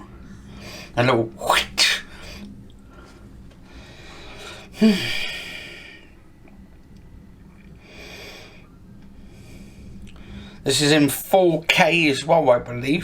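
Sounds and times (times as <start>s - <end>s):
man sighing: 4.5s - 6.0s.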